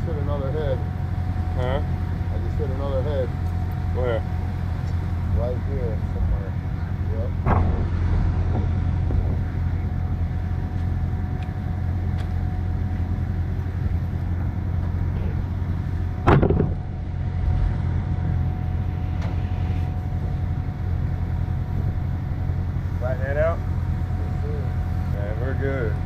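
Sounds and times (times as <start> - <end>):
truck engine idling: 0.0 - 26.0
sharp knock: 7.4 - 8.0, 16.2 - 16.8.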